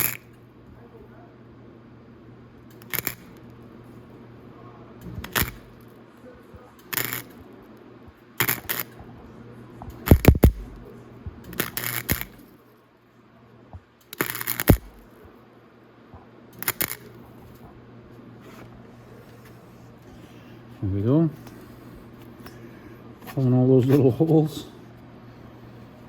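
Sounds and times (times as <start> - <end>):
arc welding bursts: 0.0 - 0.3, 2.7 - 3.4, 5.0 - 5.8, 6.8 - 7.4, 8.4 - 9.0, 10.0 - 12.5, 14.1 - 15.1, 16.6 - 17.1
steady low hum: 0.0 - 26.0.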